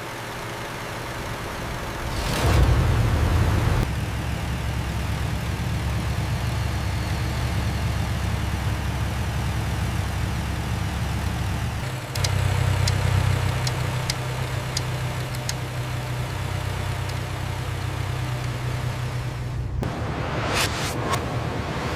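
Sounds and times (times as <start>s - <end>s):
car engine idling: 0.0s - 19.9s
sharp ticks: 11.8s - 15.7s.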